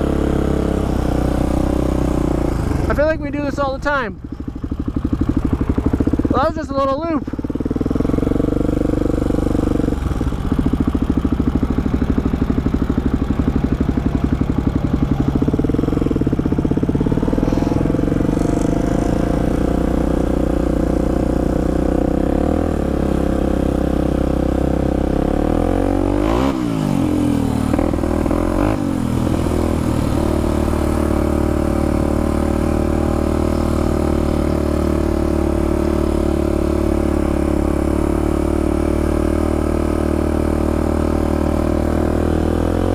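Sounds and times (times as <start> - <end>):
atv engine running: 0.0 - 42.9.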